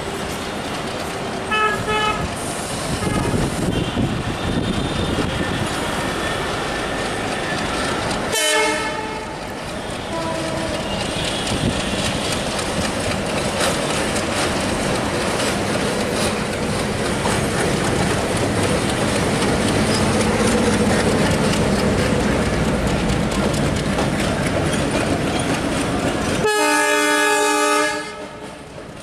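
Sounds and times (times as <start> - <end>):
diesel locomotive engine under load: 0.0 - 29.0
train wheels clickety-clack: 0.0 - 29.0
train horn: 1.5 - 2.3, 3.0 - 7.0, 8.3 - 12.2, 26.4 - 28.6.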